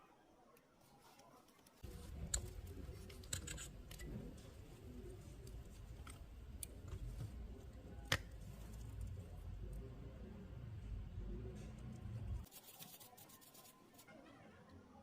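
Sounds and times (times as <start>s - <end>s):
hands handling small parts: 1.1s - 9.7s.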